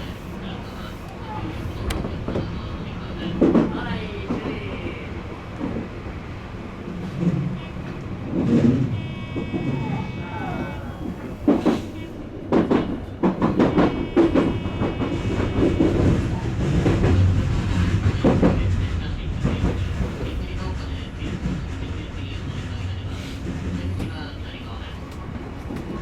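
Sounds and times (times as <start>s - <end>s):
train running hum: 0.0s - 26.0s
train wheels clattering: 10.6s - 26.0s.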